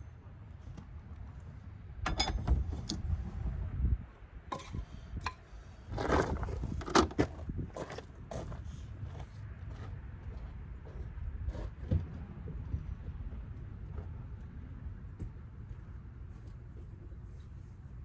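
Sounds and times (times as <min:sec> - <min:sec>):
metal scraping: 0:04.5 - 0:05.5.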